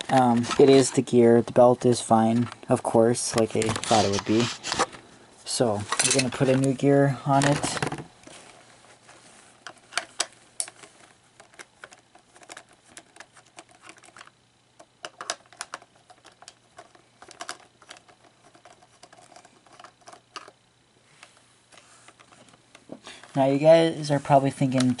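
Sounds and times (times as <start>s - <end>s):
plastic parts clicking and tapping: 9.6s - 20.6s.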